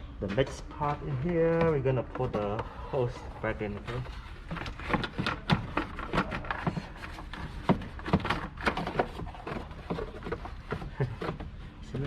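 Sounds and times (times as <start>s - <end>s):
clicks and knocks of handled parts: 3.7s - 12.0s.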